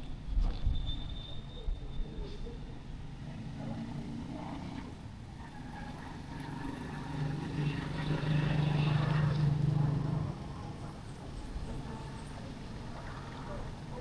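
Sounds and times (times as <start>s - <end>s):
street noise: 0.0s - 14.0s
vehicle engine droning: 5.4s - 14.0s.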